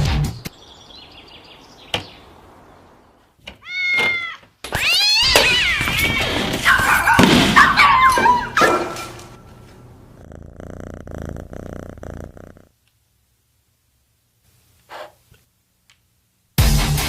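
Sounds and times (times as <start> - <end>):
cat meowing: 3.6 - 6.5.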